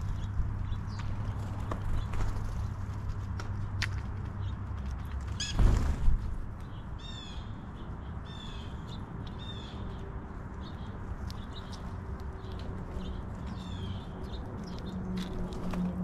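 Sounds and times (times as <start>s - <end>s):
light ticks: 10.7s - 12.7s.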